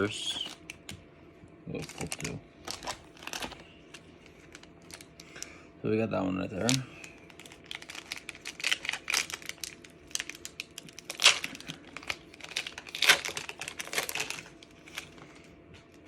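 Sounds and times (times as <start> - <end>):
foil wrapper crackling: 1.7 - 5.5, 6.5 - 15.3.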